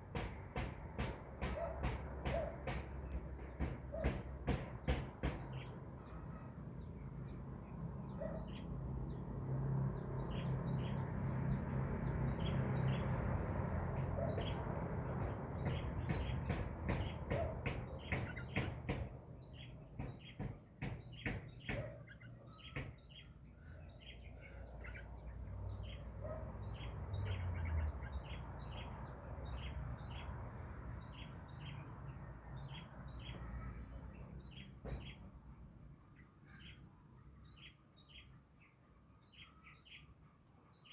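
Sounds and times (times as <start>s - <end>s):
birds chirping: 0.0s - 30.4s, 31.0s - 40.9s.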